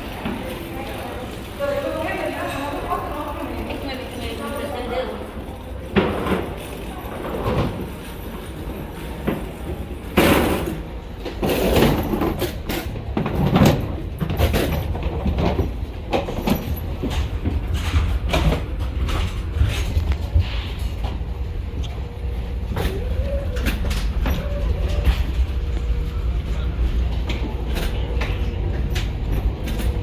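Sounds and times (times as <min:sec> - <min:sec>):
steady low rumble: 0:12.3 - 0:30.0.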